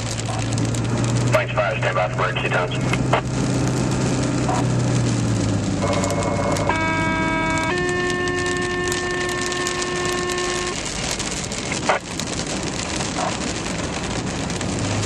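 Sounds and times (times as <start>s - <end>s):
rain hiss: 0.0s - 15.0s
radio alert tone: 1.4s - 3.2s, 5.8s - 10.8s.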